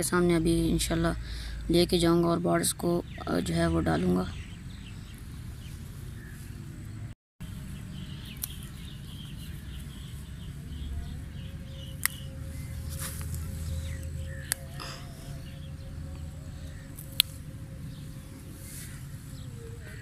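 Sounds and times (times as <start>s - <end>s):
low wind rumble: 0.0s - 20.0s
small birds chirping: 0.0s - 20.0s
sharp snaps: 11.9s - 12.3s, 14.4s - 15.0s, 16.9s - 17.4s.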